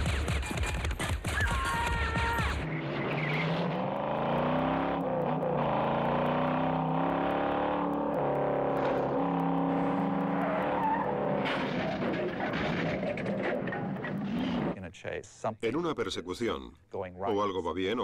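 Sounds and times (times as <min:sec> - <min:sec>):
car engines revving: 0:02.5 - 0:14.8.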